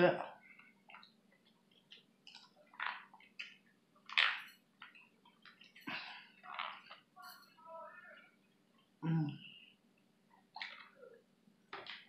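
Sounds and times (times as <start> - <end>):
wet chewing and lip-smacking: 0.5 - 4.2.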